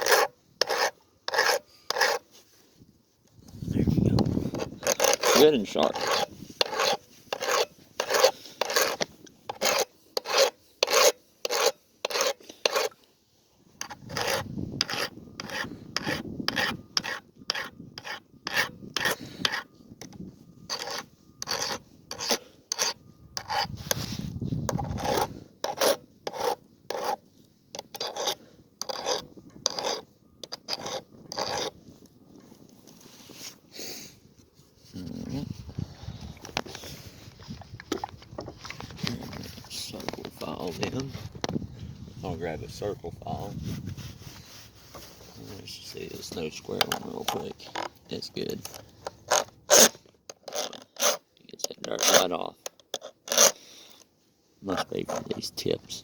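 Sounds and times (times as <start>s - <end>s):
file rasping on chainsaw chain: 0.0s - 2.3s, 4.4s - 13.0s, 13.8s - 19.7s, 20.7s - 27.2s, 27.8s - 31.8s, 48.7s - 51.2s, 51.8s - 53.6s.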